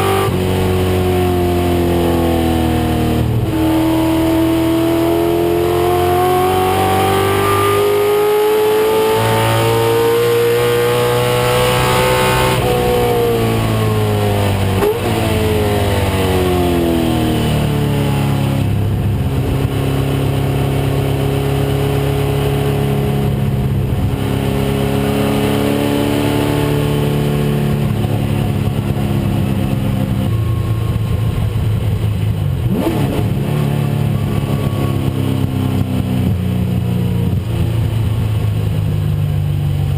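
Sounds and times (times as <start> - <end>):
race car engine revving: 0.0 - 35.1.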